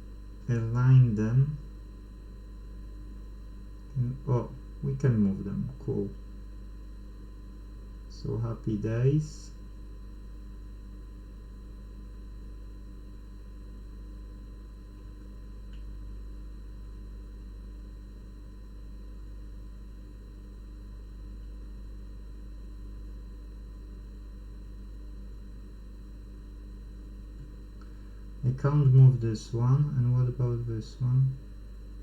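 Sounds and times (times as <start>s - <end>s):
electrical hum: 0.0s - 32.0s
small tick: 15.7s - 15.9s.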